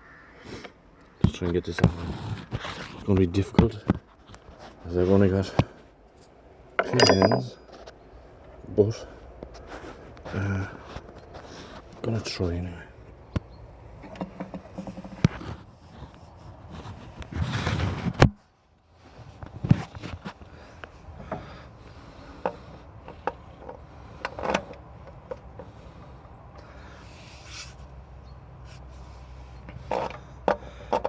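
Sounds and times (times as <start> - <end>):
metal parts knocking and clinking: 6.8 - 7.7.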